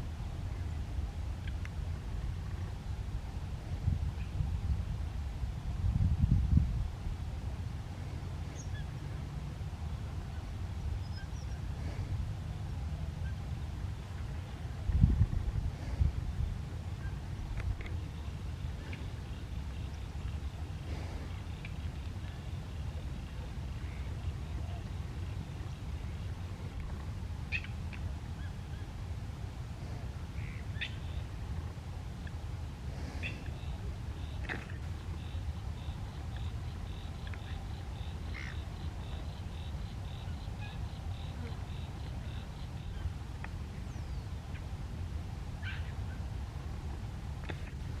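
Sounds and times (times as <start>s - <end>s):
low wind rumble: 0.0s - 48.0s.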